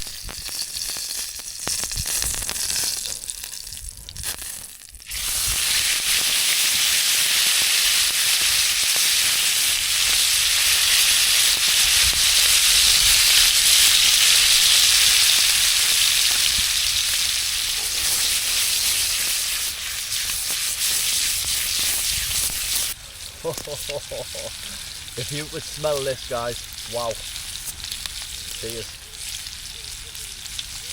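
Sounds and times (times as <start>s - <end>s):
steak sizzling: 0.0s - 30.9s.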